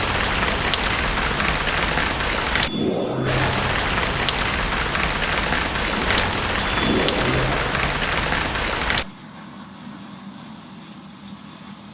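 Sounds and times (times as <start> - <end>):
heavy rain: 0.0 - 9.2
low rumble of thunder: 0.0 - 9.2.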